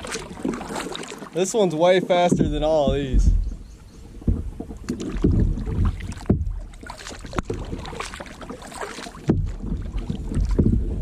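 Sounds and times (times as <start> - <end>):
paddle splashing in water: 0.0 - 11.0
wind on microphone: 2.3 - 8.0, 9.3 - 11.0.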